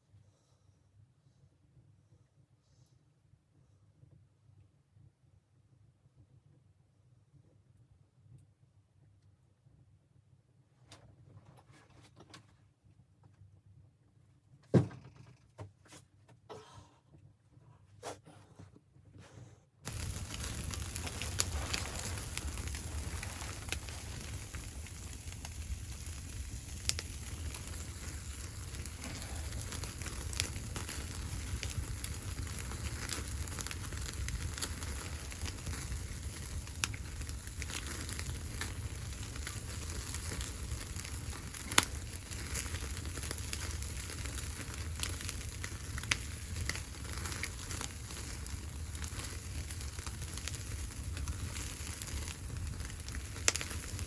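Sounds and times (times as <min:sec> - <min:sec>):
wood fire crackling and popping: 0:19.8 - 0:54.0.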